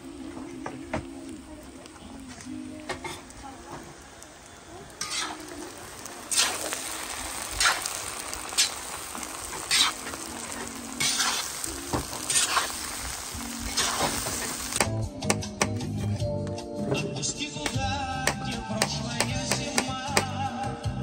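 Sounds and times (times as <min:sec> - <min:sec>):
food sizzling in a pot: 0:00.0 - 0:16.2, 0:17.5 - 0:21.0
metal spatula scraping: 0:05.0 - 0:05.5, 0:09.6 - 0:12.8, 0:13.7 - 0:14.5.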